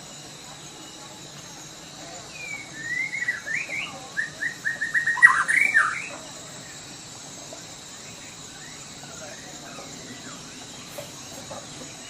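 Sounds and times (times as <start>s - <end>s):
bird singing whistled notes: 1.7s - 6.8s.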